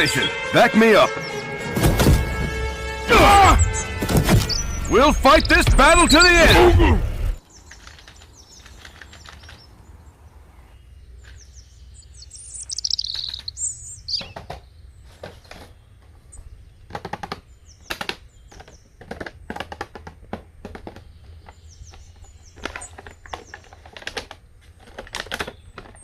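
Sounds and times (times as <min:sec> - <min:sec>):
sharp plastic clicks: 0:07.6 - 0:09.7, 0:16.9 - 0:26.0.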